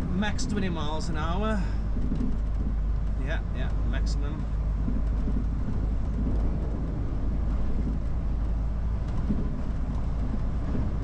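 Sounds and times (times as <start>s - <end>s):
lorry diesel engine rumble: 0.0s - 11.0s
road noise: 0.0s - 11.0s.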